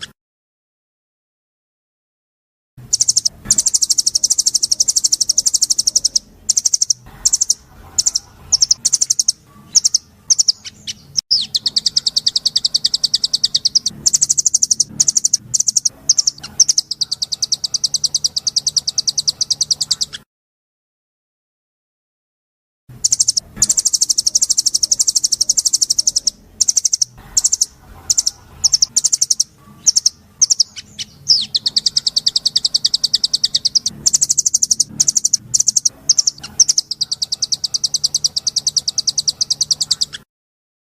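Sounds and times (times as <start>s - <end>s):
songbird trilling: 2.9s - 20.2s, 23.0s - 40.2s.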